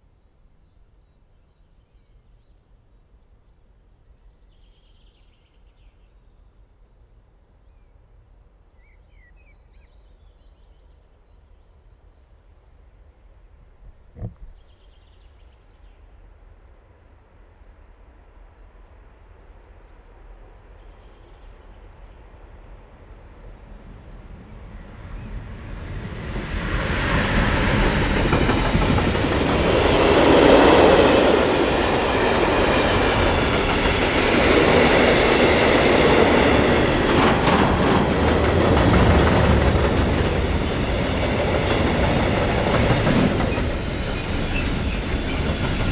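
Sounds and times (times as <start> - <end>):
train wheels rumbling on rails: 23.1 - 45.9.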